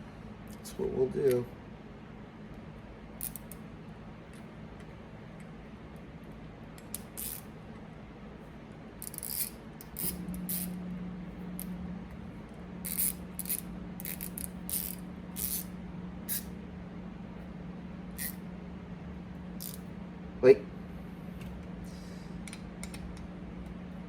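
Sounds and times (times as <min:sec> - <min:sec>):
low hum: 0:07.5 - 0:24.0
parts and tools scraping: 0:09.0 - 0:10.8, 0:12.8 - 0:15.7, 0:19.6 - 0:19.8.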